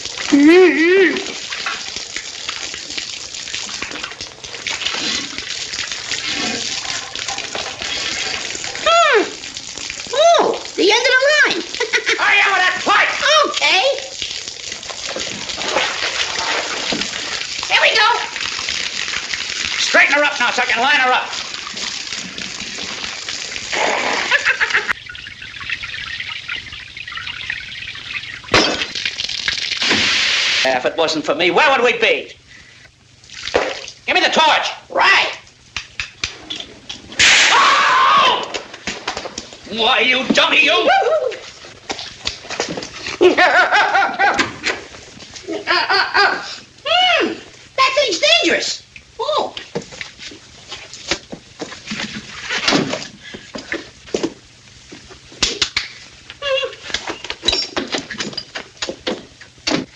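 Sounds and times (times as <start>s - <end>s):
water gushing from leaking pipe: 0.0s - 59.9s.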